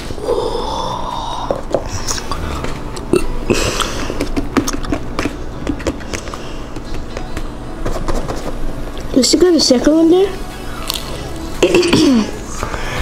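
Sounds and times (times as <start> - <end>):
wet chewing mouth sounds: 2.1 - 6.4.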